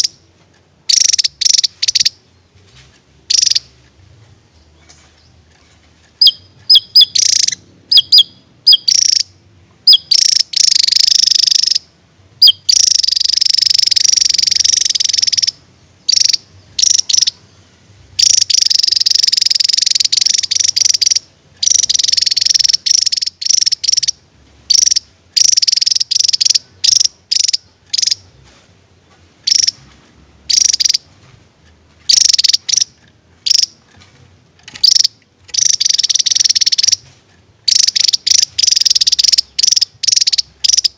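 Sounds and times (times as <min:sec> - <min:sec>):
bird singing high trills: 0:00.9 - 0:02.6, 0:03.3 - 0:03.8, 0:06.2 - 0:28.5, 0:32.1 - 0:33.8, 0:34.7 - 0:37.0, 0:37.7 - 0:40.9.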